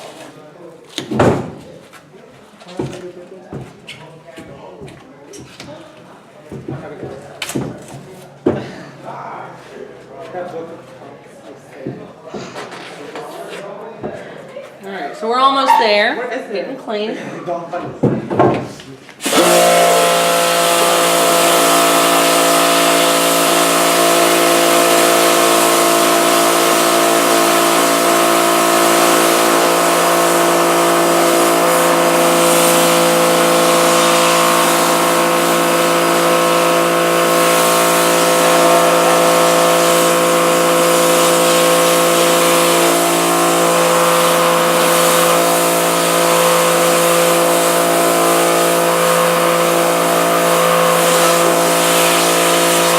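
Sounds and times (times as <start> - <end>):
pressure washer motor hum: 19.2 - 52.9
water jet hissing: 19.2 - 52.9.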